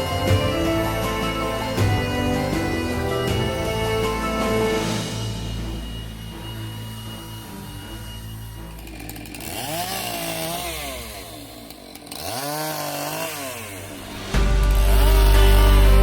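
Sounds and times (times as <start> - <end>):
quiet background music: 0.0 - 11.2
small gasoline engine revving: 6.5 - 16.0.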